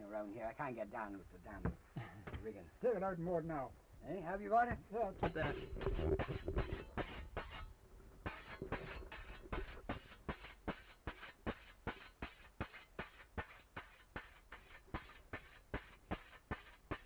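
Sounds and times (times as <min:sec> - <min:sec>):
whetstone scraping scythe blade: 0:05.2 - 0:17.0.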